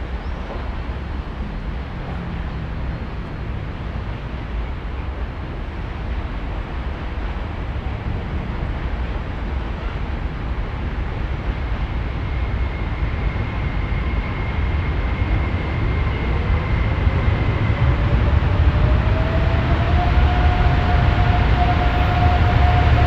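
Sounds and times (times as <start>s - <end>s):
freight train rumble: 0.0s - 23.0s
faint rising whine: 15.5s - 23.0s.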